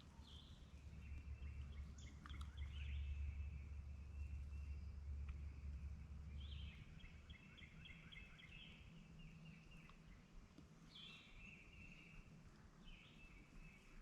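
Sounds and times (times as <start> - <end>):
low rumble: 0.0 - 9.6
songbird chirping: 0.0 - 14.0.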